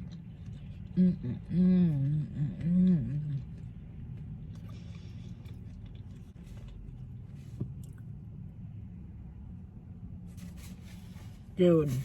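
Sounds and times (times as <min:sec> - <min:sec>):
chewing sandwich: 0:00.0 - 0:08.3.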